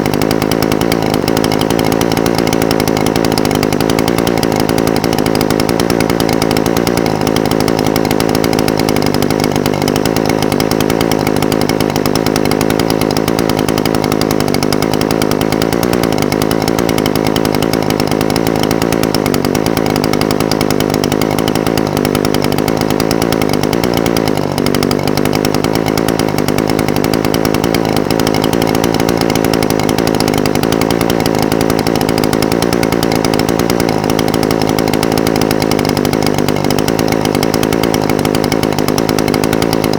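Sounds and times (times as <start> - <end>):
brush cutter engine idling: 0.0 - 39.9.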